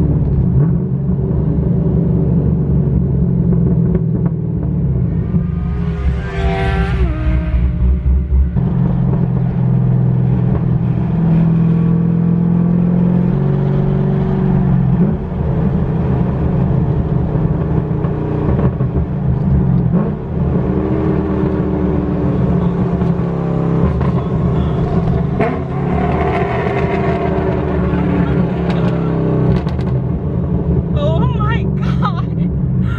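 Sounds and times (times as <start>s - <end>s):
loud rough car engine driving: 0.0s - 32.9s.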